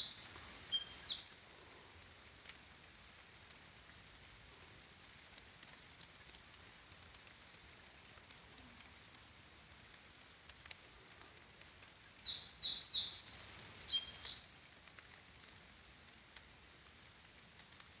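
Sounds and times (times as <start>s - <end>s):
songbird singing: 0.0s - 1.4s, 12.2s - 14.4s
light rain patter: 0.0s - 18.0s.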